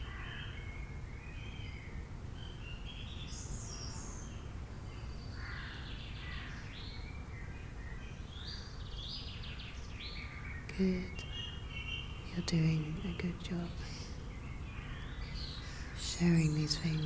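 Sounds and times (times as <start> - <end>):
bird calls and chirps: 0.0 - 17.0
low background rumble: 10.3 - 17.0.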